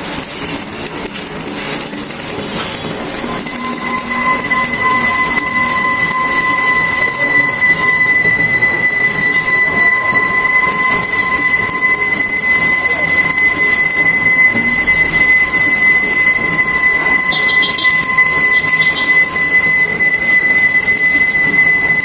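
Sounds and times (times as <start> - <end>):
arc welding hiss: 0.0 - 8.2, 14.6 - 19.8
high-pitched whine: 0.0 - 22.0.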